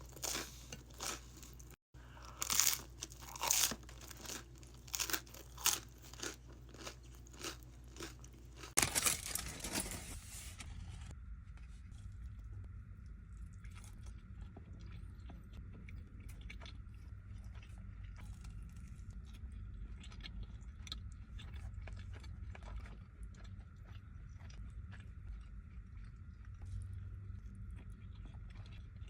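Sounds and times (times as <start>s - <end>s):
chewing crunchy food: 0.0s - 9.1s, 13.0s - 29.0s.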